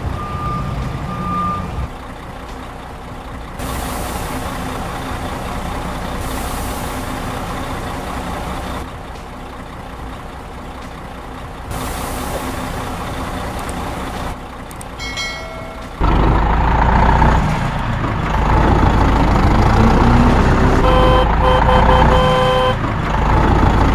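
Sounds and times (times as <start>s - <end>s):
heavy truck engines running: 0.0s - 23.9s
short repeated beeps: 20.9s - 22.8s.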